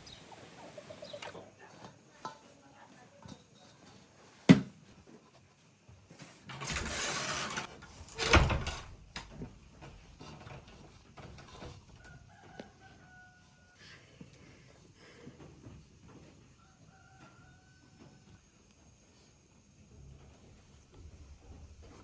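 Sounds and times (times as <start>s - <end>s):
rustling scraping noise: 5.1s - 12.2s
clattering burst: 6.5s - 9.4s
rooster crowing faintly: 11.9s - 14.2s, 16.4s - 18.5s.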